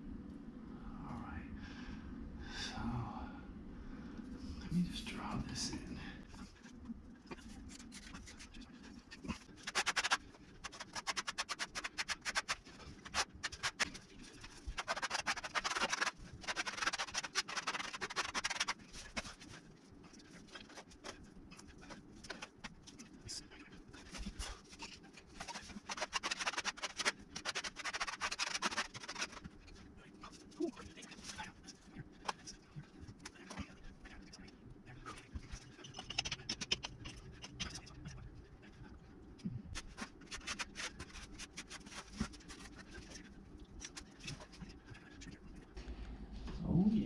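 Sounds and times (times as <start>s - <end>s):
pencil scratching on wood: 7.3s - 34.4s, 39.8s - 45.7s.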